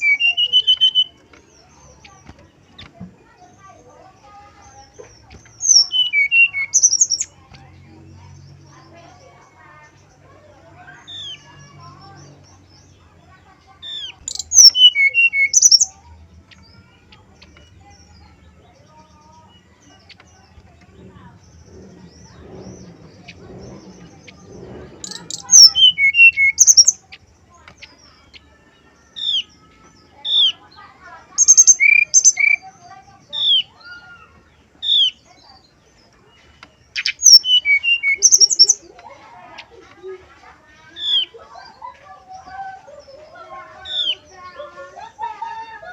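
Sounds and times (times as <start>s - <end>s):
bird singing whistled notes: 0.0s - 1.7s, 5.6s - 7.4s, 13.8s - 16.8s, 21.8s - 27.1s, 31.4s - 34.2s, 36.9s - 38.9s
faint background bird calls: 0.0s - 45.9s.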